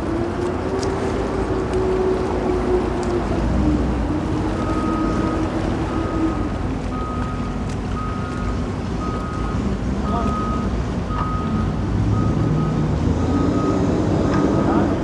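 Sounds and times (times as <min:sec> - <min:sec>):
wind: 0:00.0 - 0:15.0
reversing alarm beeping: 0:05.9 - 0:15.0.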